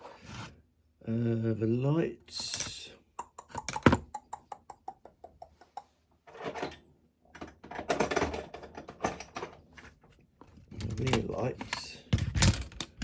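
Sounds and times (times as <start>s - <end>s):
small parts scraping and rattling: 2.3s - 2.9s, 6.2s - 13.0s.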